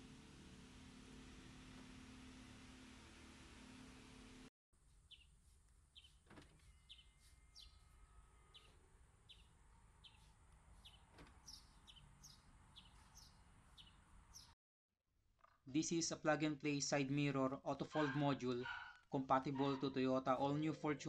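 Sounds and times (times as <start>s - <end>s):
bird chirping: 5.1s - 5.3s, 5.9s - 7.9s, 8.5s - 14.6s.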